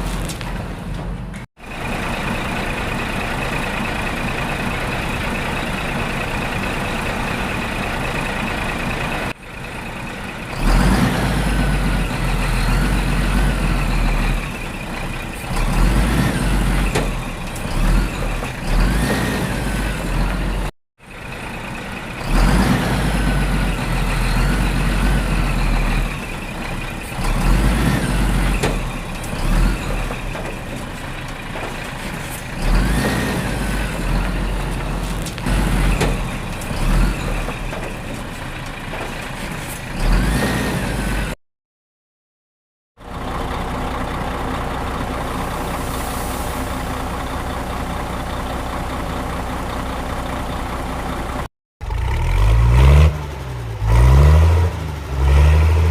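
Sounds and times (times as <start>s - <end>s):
heavy engine revving: 10.2s - 41.4s, 43.1s - 55.9s.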